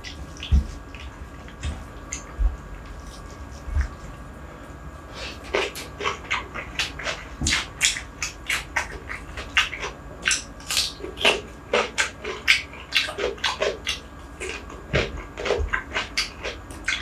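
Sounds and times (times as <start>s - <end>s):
wet chewing and lip-smacking: 0.0s - 4.3s, 5.2s - 17.0s
crisp cucumber bites: 9.6s - 17.0s.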